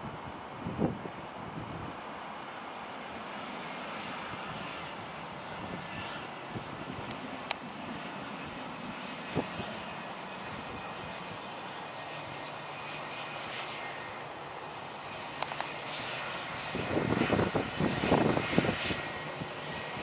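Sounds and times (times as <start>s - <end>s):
distant jet engines hissing: 0.0s - 20.0s
sharp clicks: 15.4s - 16.2s.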